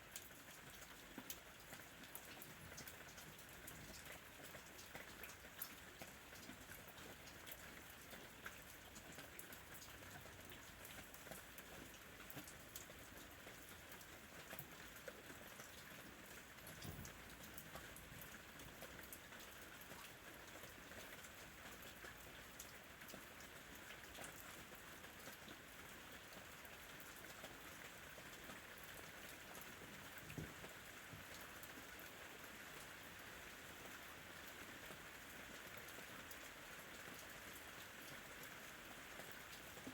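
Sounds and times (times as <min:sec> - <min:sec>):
faint rain: 0:00.0 - 0:39.9.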